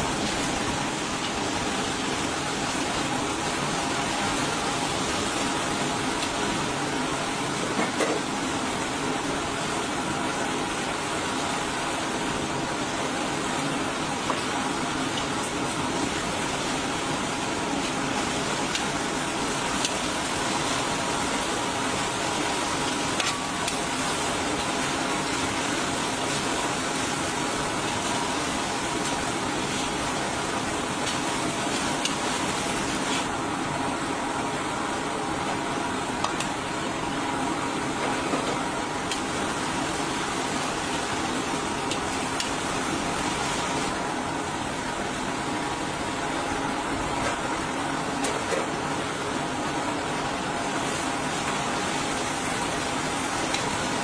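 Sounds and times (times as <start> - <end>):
chicken sizzling in hot oil: 8.4 - 33.5.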